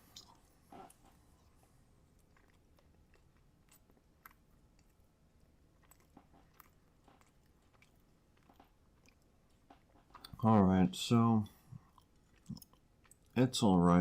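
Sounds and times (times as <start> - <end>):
faint chewing: 0.0 - 10.6, 11.3 - 13.5
quiet room hum: 0.0 - 14.0
wet mouth clicks: 11.8 - 13.4.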